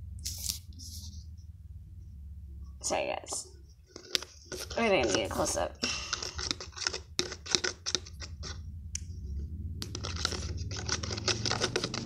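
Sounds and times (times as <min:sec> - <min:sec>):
pen scraping inside a cup: 0:03.9 - 0:08.7, 0:09.8 - 0:12.0.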